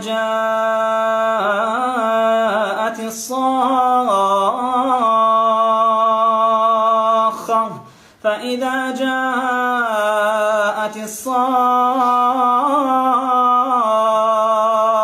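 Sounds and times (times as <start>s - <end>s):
man chanting melodically: 0.0s - 15.0s
intake of breath: 7.8s - 8.3s.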